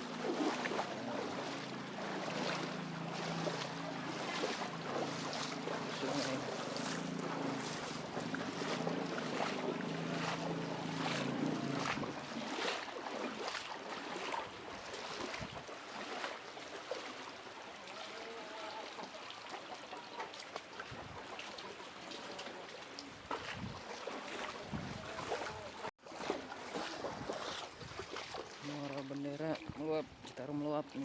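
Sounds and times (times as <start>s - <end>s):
engine running: 0.0s - 13.2s
wind noise on microphone: 15.3s - 15.6s, 23.4s - 23.8s, 24.6s - 25.2s.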